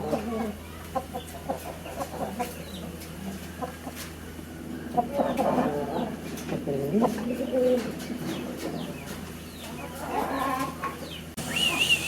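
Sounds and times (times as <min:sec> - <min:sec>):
birds cooing: 0:04.8 - 0:12.0
faint high chirps: 0:11.4 - 0:12.0.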